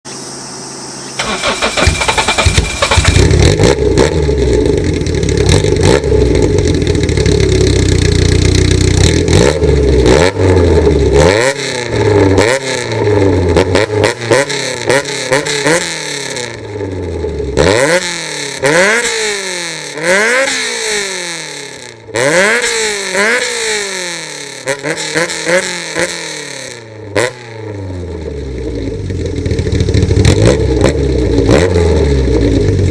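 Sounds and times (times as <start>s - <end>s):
car engine starting and revving: 1.1s - 32.9s.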